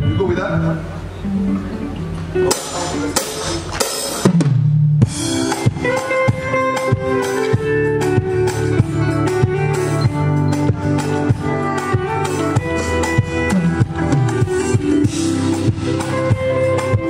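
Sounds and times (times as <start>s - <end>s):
sustained keyboard notes: 0.0s - 4.3s, 5.0s - 17.0s
bass notes: 0.0s - 17.0s
drum kit: 1.0s - 17.0s.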